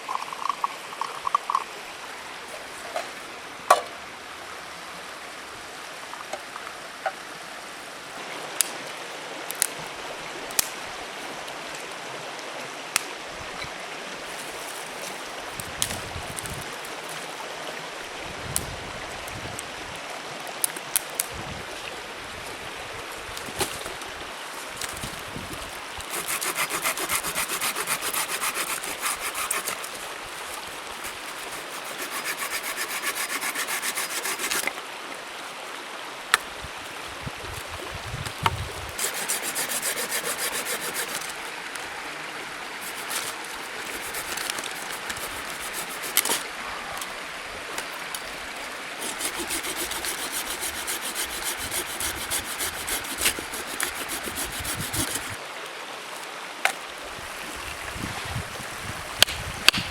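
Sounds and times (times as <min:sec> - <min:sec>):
hand saw cutting wood: 0:26.0 - 0:34.8, 0:38.9 - 0:41.4, 0:42.8 - 0:46.4, 0:49.0 - 0:55.4.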